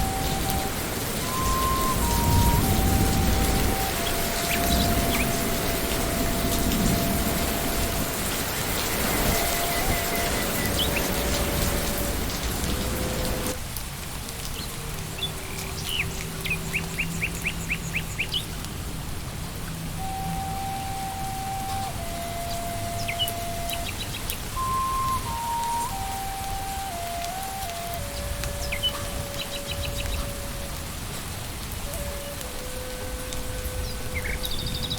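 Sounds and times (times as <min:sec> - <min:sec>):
ambient music: 0:00.0 - 0:13.6, 0:19.8 - 0:34.9
bird chirping: 0:00.0 - 0:13.6, 0:20.0 - 0:30.7, 0:33.7 - 0:34.9
soft melody of held notes: 0:00.0 - 0:13.6, 0:19.6 - 0:34.9
rain hiss: 0:00.0 - 0:34.9.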